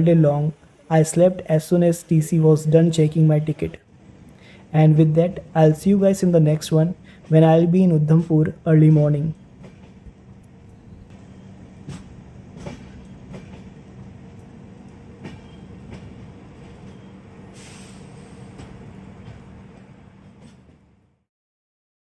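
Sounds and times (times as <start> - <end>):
train rumble and hum: 0.0 - 21.2
wheels clicking over rail joints: 11.8 - 17.1
brief hiss: 17.5 - 18.6.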